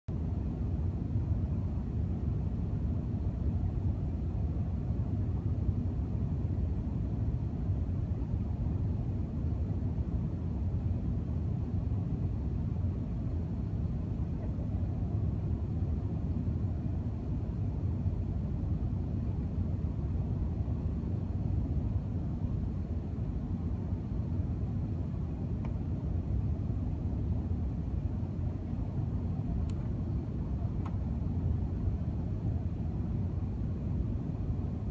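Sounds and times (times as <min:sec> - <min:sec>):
airliner cabin rumble: 0:00.1 - 0:34.9.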